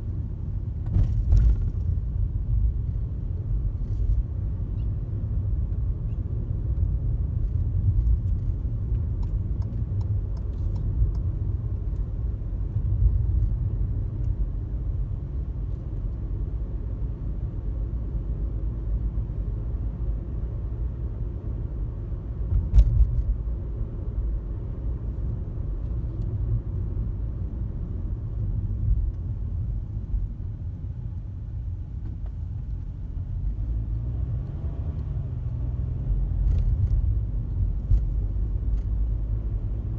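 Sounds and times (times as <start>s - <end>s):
road and engine rumble: 0.0s - 39.9s
car bump: 0.8s - 1.9s.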